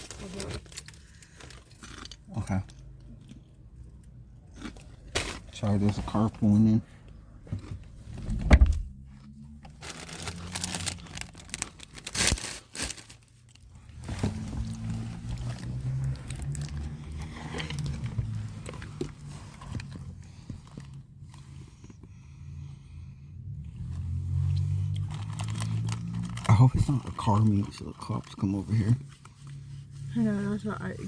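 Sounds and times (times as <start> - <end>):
sharp thump: 8.3 - 8.9
chips crunching: 9.7 - 13.0
chip bag crinkling: 9.7 - 13.6.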